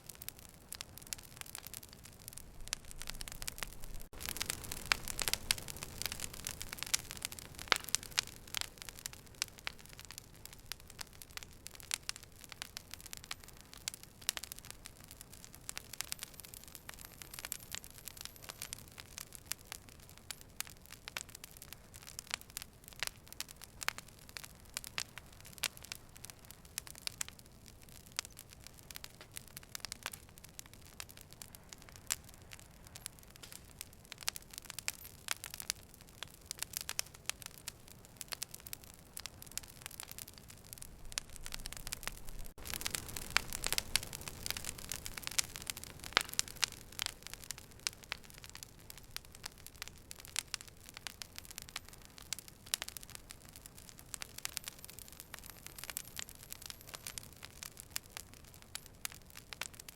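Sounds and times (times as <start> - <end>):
fire crackling and popping: 0.0 - 59.9.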